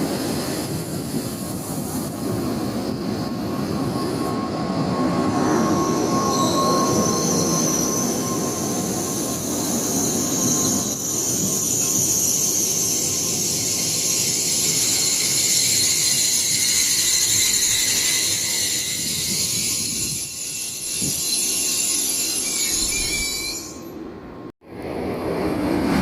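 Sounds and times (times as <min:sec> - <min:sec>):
high-speed train passing: 0:00.0 - 0:26.0
high-pitched wheel squeal: 0:04.0 - 0:24.0.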